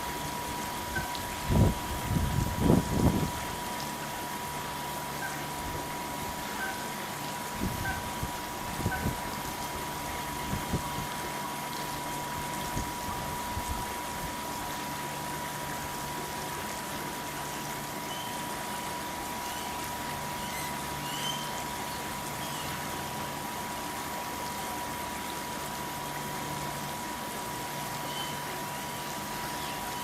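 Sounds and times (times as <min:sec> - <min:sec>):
running water: 0:00.0 - 0:30.0
thin steady tone: 0:05.1 - 0:07.0.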